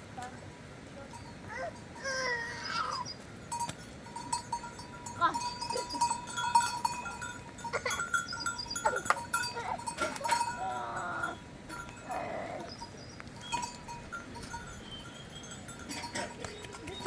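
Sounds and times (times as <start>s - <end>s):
animal bells ringing: 1.0s - 17.0s.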